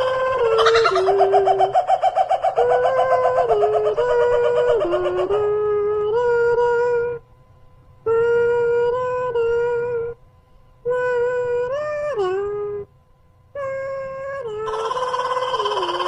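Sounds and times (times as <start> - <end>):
eerie wailing tone: 0.0 - 7.2, 13.6 - 16.0.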